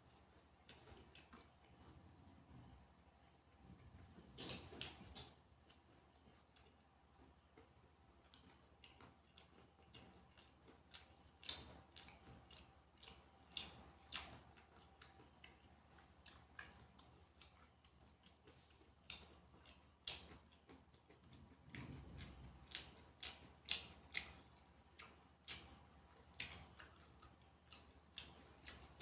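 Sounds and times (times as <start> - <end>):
person chewing food: 0.0 - 29.0.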